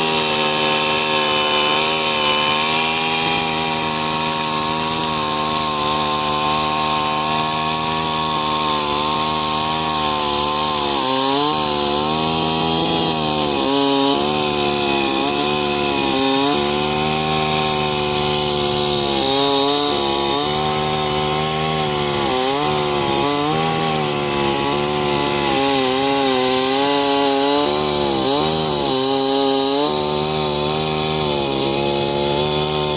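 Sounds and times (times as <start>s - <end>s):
chainsaw cutting wood: 0.0s - 32.9s.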